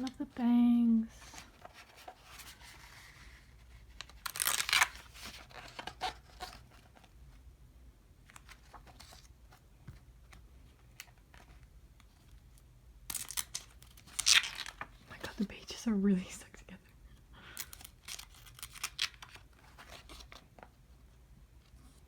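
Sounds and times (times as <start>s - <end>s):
paper clicks and rustles: 1.4s - 7.2s, 8.2s - 15.4s, 17.6s - 20.8s
stuck pages peeling apart: 4.0s - 6.6s, 13.1s - 14.9s, 17.6s - 20.4s.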